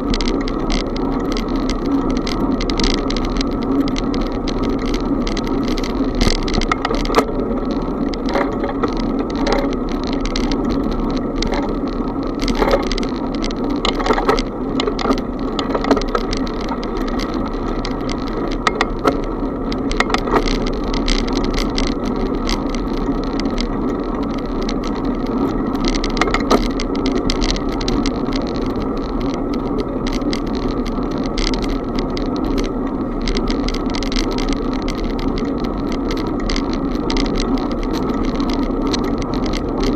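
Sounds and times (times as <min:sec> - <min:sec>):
bicycle clicks and rattles: 0:00.0 - 0:39.9
wind and tyre noise: 0:00.0 - 0:39.9.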